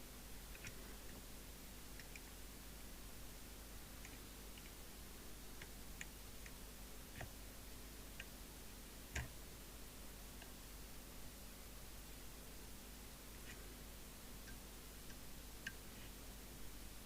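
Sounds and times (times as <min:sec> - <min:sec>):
faint mains hum: 0:00.0 - 0:17.0
small clicks and light taps: 0:00.5 - 0:01.2, 0:01.9 - 0:02.4, 0:04.0 - 0:04.8, 0:05.5 - 0:07.4, 0:08.1 - 0:08.4, 0:09.1 - 0:09.4, 0:10.4 - 0:10.6, 0:14.4 - 0:16.2.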